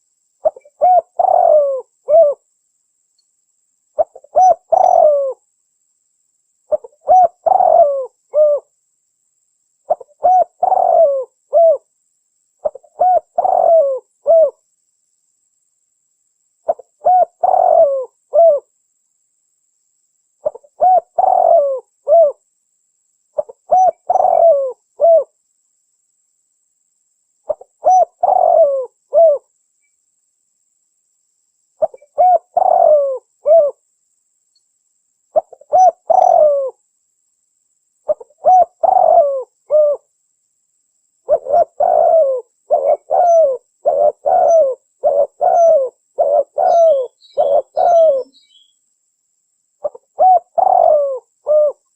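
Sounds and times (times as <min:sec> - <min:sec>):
dove cooing: 0:00.4 - 0:02.4, 0:04.0 - 0:05.4, 0:06.7 - 0:08.7, 0:09.9 - 0:11.9, 0:12.6 - 0:14.6, 0:16.7 - 0:18.7, 0:20.4 - 0:22.4, 0:23.4 - 0:25.4, 0:27.5 - 0:29.5, 0:31.8 - 0:33.8, 0:35.4 - 0:36.8, 0:38.1 - 0:40.1, 0:41.3 - 0:48.7, 0:49.8 - 0:51.9.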